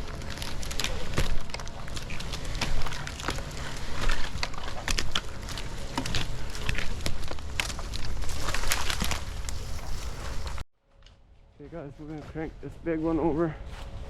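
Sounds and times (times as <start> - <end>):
footsteps crunching through dry leaves: 0.0 - 10.6, 11.4 - 14.0
twigs snapping: 0.0 - 11.2.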